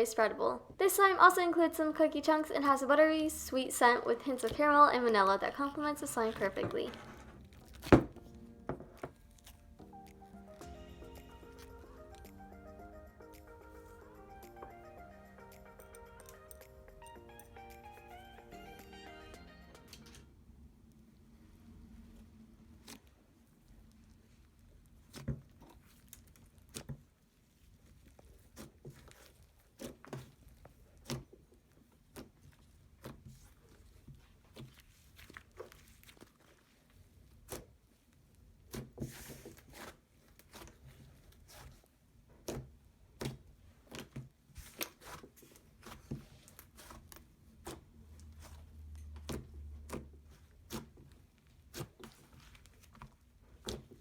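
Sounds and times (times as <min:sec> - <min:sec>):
slime clicking and crackling: 0:05.7 - 0:10.6, 0:22.8 - 0:41.8.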